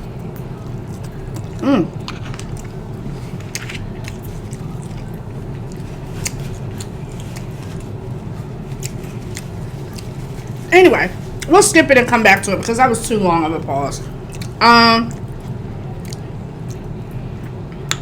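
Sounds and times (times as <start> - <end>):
person chewing food: 0.0 - 10.7, 14.1 - 17.9
low background hum: 0.0 - 18.0
person humming mm: 1.6 - 2.0.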